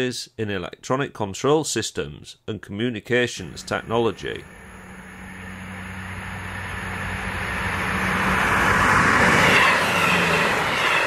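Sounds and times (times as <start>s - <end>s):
passenger train passing: 3.5s - 11.0s.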